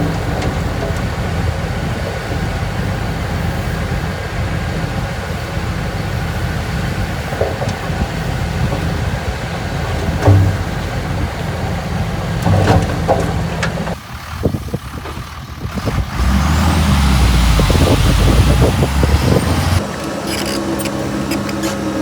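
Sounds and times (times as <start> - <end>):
heavy diesel machinery rumbling: 0.0 - 22.0.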